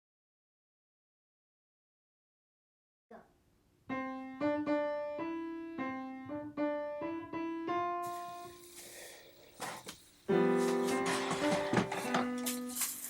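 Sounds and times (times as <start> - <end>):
slow piano notes: 3.9 - 8.8, 10.2 - 13.0.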